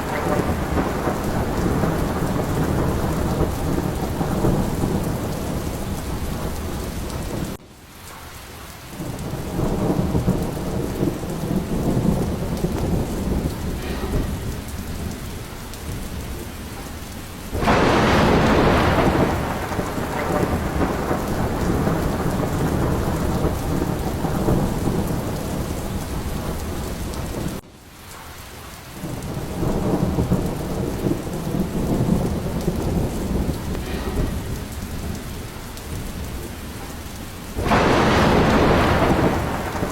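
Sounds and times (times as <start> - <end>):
loud thunderclap: 0.0 - 7.6, 8.9 - 27.6, 29.0 - 39.9
rolling thunder: 0.0 - 7.6, 8.4 - 27.6, 28.2 - 39.9
heavy rain: 0.0 - 39.9.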